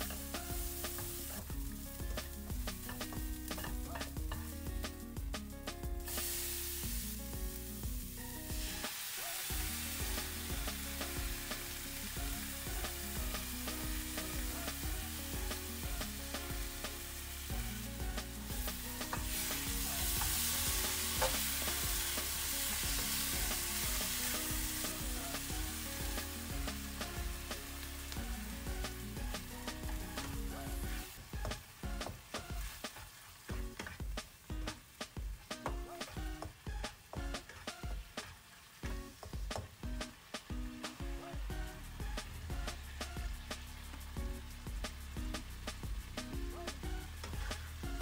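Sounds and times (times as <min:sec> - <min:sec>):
meat sizzling in hot oil: 0:00.0 - 0:34.6, 0:36.2 - 0:48.0
spatula scraping a wok: 0:18.5 - 0:25.0.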